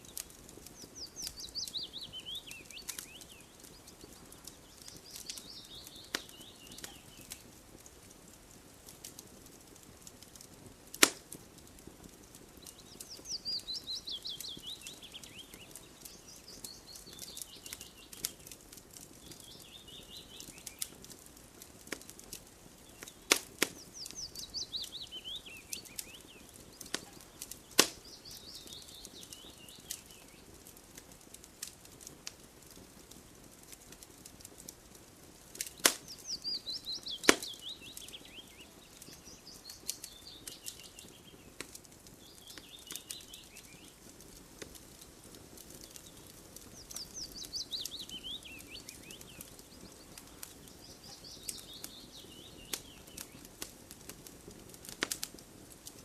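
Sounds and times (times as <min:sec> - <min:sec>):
wood fire crackling and popping: 0:00.0 - 0:56.0
bird singing falling notes: 0:00.8 - 0:07.4, 0:12.6 - 0:18.5, 0:22.8 - 0:30.5, 0:35.6 - 0:41.6, 0:42.2 - 0:44.0, 0:45.7 - 0:53.5.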